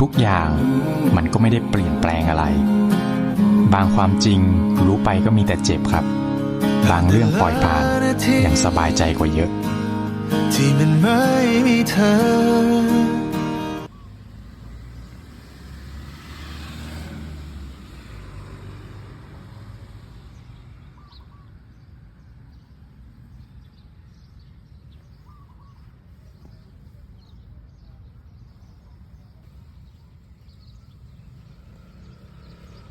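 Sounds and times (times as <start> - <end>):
vehicle passing: 0.3 - 21.1, 30.4 - 32.9
faint bird chirps: 13.9 - 14.3, 20.9 - 22.6, 23.4 - 32.9.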